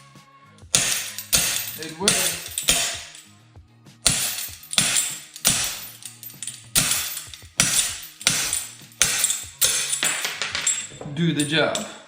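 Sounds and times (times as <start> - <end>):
background music: 0.0 - 12.0
hammer striking steel crowbar: 0.7 - 3.2, 4.0 - 10.9.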